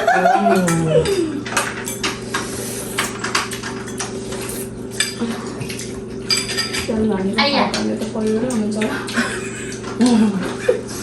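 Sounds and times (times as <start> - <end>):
steady low hum: 0.0 - 11.0
cutlery clinking on plates: 1.5 - 6.9.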